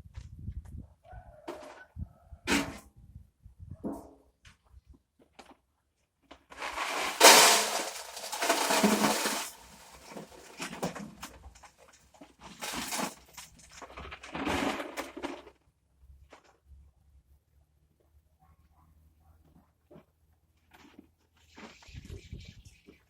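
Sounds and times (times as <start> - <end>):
items clattering and scraping: 6.3 - 15.6.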